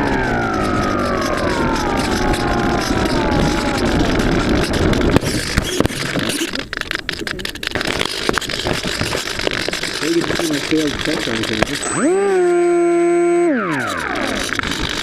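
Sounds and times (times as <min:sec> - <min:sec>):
motor whine gliding down: 0:00.0 - 0:05.8, 0:11.7 - 0:15.0
unsteady rushing noise: 0:00.0 - 0:07.0.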